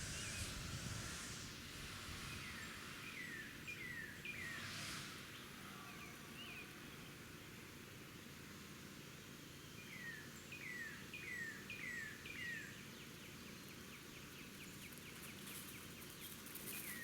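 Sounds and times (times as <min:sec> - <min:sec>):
outdoor hiss: 0:00.0 - 0:08.6.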